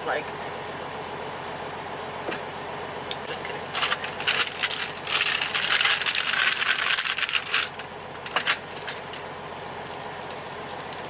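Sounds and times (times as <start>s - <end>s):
makeup items rustling and clicking: 3.8s - 9.2s.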